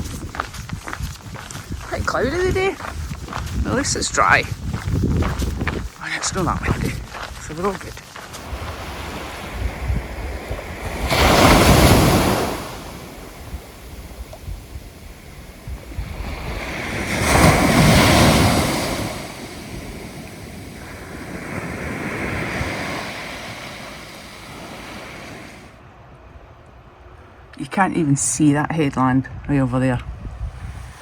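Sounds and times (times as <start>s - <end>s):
wind rumble on microphone: 0.0s - 25.8s, 29.1s - 31.0s
waves breaking on beach: 1.9s - 25.8s.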